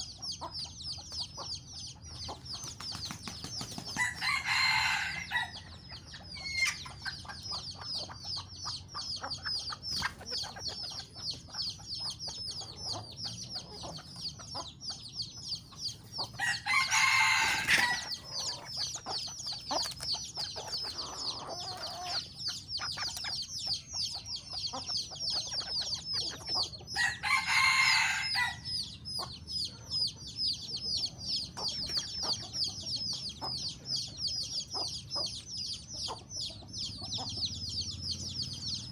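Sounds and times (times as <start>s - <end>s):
chicks peeping: 0.0s - 38.9s
rooster crowing: 4.0s - 5.6s, 16.4s - 18.4s, 27.0s - 28.8s.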